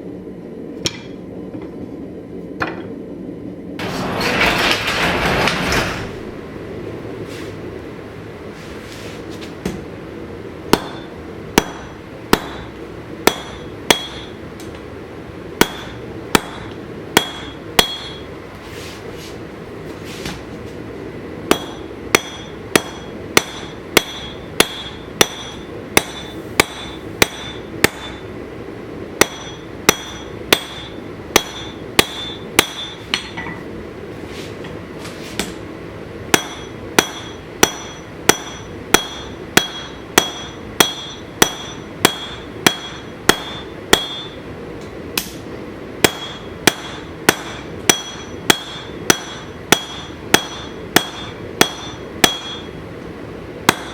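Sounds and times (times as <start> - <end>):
steady background noise: 0.0 - 53.9
hammer ringing on anvil: 10.7 - 14.4, 15.6 - 18.3, 21.5 - 28.3, 29.2 - 33.6, 36.3 - 44.4, 46.0 - 52.8, 53.7 - 53.9.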